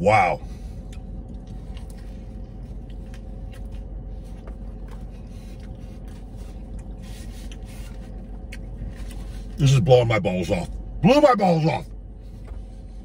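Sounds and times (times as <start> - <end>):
car cabin hum: 0.0 - 13.0
chewing sandwich: 0.4 - 9.6.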